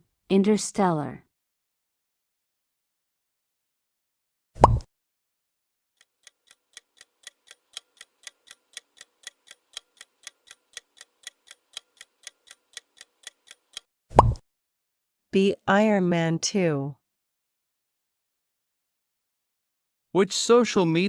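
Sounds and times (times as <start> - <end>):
countdown timer ticking: 6.2 - 13.9.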